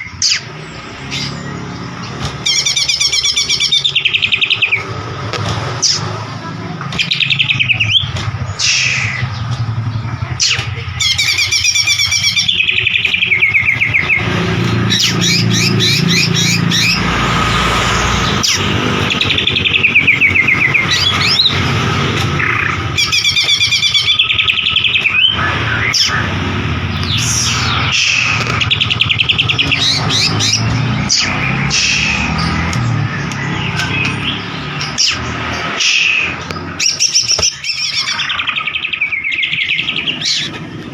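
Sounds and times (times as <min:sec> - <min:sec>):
bird singing whistles and trills: 0:18.3 - 0:21.7, 0:27.0 - 0:40.6.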